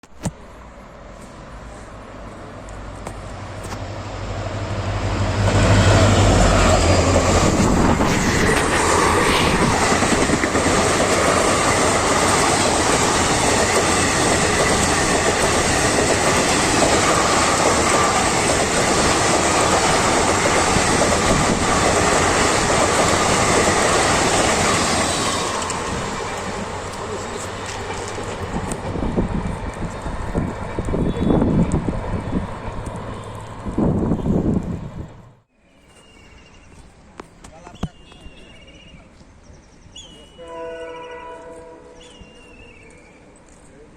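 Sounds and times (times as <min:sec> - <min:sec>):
diesel locomotive engine rumble: 0:00.4 - 0:35.5.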